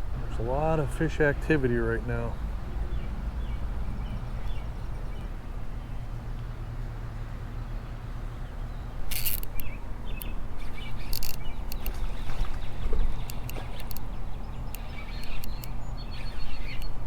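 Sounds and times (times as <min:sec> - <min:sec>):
birds chirping: 0:00.0 - 0:17.0
steady low rumble: 0:00.0 - 0:17.0
sharp hissing clicks: 0:14.7 - 0:17.0.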